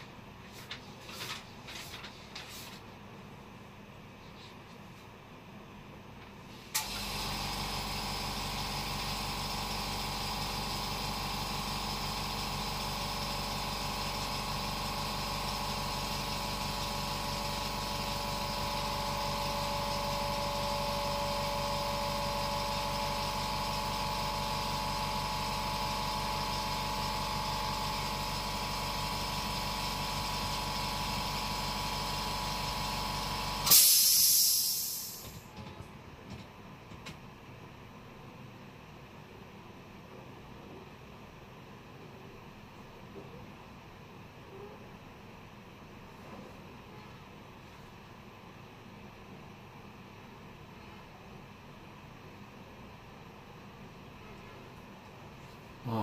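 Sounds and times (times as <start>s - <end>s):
mechanical hum with whine: 0.0s - 56.0s
loud hiss: 33.7s - 35.4s.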